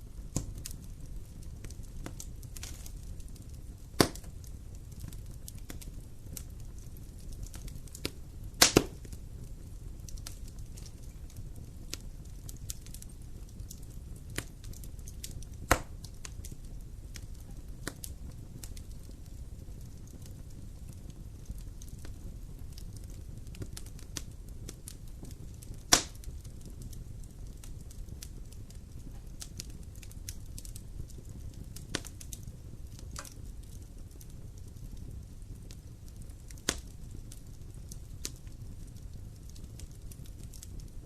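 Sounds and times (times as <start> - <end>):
fire flames burning: 0.0 - 41.0
wood crackling and popping: 0.0 - 41.0.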